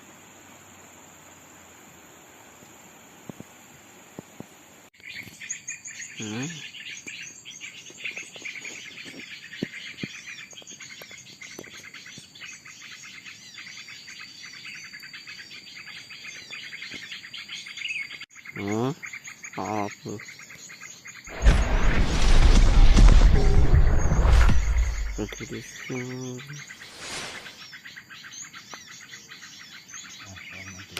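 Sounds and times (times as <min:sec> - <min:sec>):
small birds chirping chorus: 0:04.2 - 0:30.9
low gliding bird note: 0:21.4 - 0:25.4
high insect buzz: 0:26.6 - 0:27.7.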